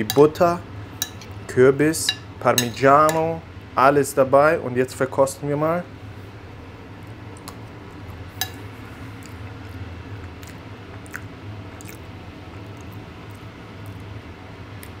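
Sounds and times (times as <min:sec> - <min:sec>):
low background hum: 0:00.0 - 0:15.0
person chewing soft food: 0:09.0 - 0:14.2.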